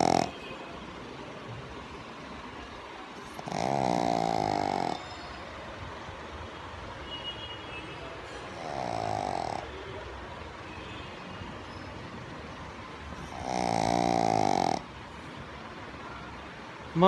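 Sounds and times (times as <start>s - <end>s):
dog snoring: 0.0s - 0.4s, 3.2s - 5.1s, 8.4s - 9.8s, 13.1s - 15.0s.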